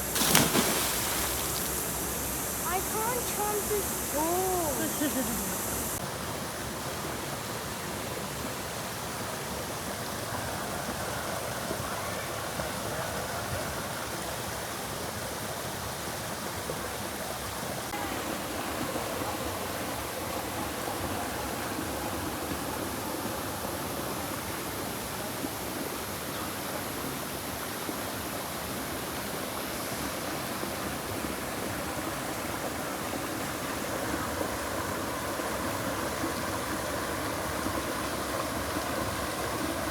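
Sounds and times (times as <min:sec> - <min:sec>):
water rushing over small waterfall: 0:00.0 - 0:15.1.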